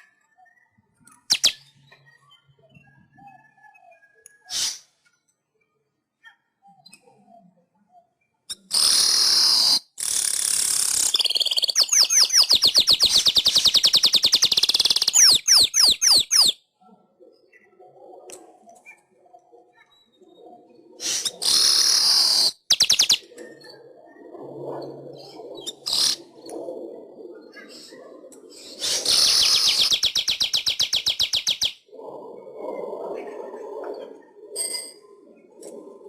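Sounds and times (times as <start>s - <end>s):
weaver bird song: 0.0s - 6.0s, 6.6s - 32.0s.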